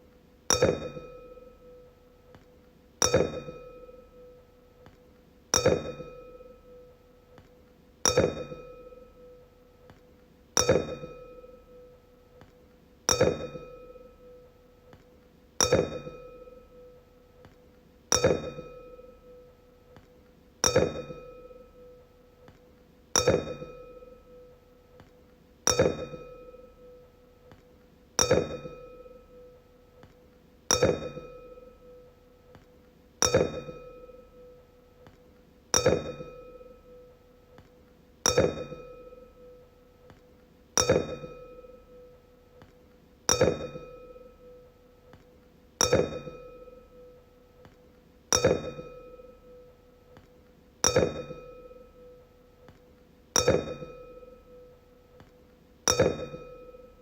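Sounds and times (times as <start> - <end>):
wine glass struck ringing: 0.5 - 1.8, 5.6 - 6.9, 8.1 - 9.4, 10.6 - 11.9, 13.1 - 14.4, 15.6 - 16.9, 18.1 - 19.4, 20.6 - 21.9, 25.7 - 27.0, 28.2 - 29.5, 30.7 - 32.0, 33.2 - 34.6, 35.8 - 37.0, 38.3 - 39.6, 40.8 - 42.1, 43.3 - 44.6, 45.8 - 47.2, 48.3 - 49.7, 50.8 - 52.2, 53.4 - 54.7, 55.9 - 57.0.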